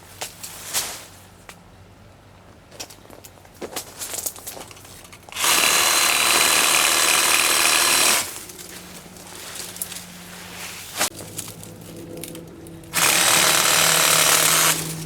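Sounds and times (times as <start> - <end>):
reciprocating saw cutting branch: 5.3 - 8.6, 12.9 - 15.0.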